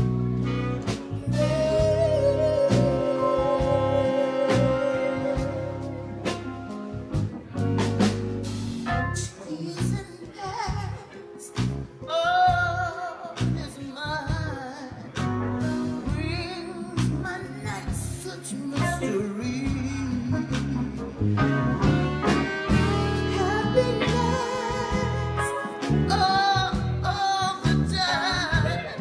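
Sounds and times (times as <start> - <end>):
jazz-blues band playing: 0.0 - 29.0
woman singing with vibrato: 1.1 - 6.1, 9.2 - 15.1, 16.0 - 20.9, 22.7 - 29.0.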